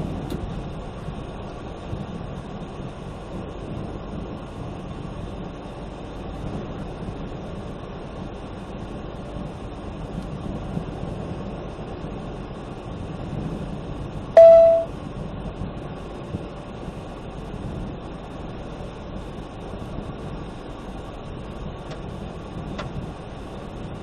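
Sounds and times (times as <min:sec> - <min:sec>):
car driving in storm rumble: 0:00.0 - 0:24.0
loud short beep: 0:14.4 - 0:14.9.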